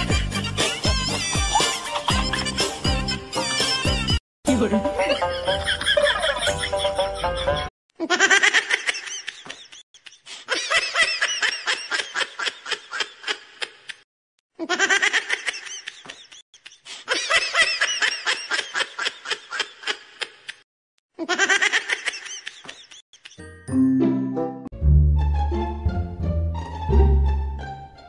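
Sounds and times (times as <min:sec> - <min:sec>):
high-pitched laughter: 0:00.0 - 0:04.0, 0:04.9 - 0:14.0, 0:14.6 - 0:20.6, 0:21.2 - 0:23.6.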